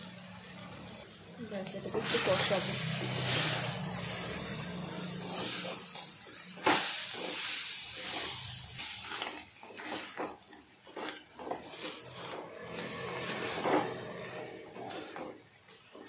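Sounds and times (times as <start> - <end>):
crab and spices sizzling in clay pot: 0.0 - 16.0
spatula scraping and knocking pot: 9.8 - 16.0.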